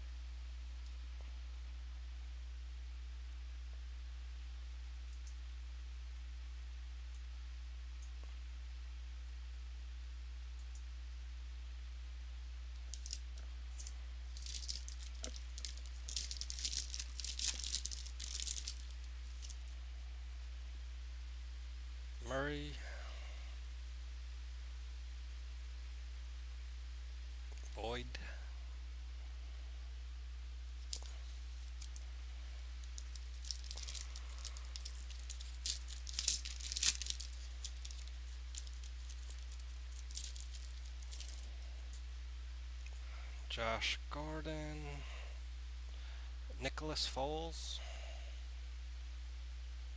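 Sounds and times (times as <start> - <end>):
low electrical hum: 0.0 - 49.9
packaging crinkling and rustling: 12.9 - 19.8, 30.8 - 32.0, 32.7 - 42.0.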